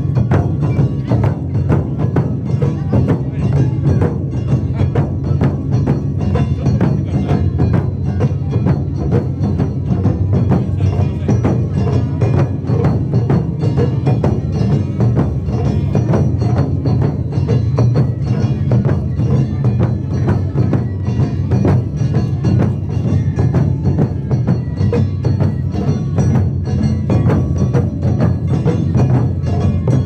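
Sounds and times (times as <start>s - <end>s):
large drums beating: 0.0s - 30.0s.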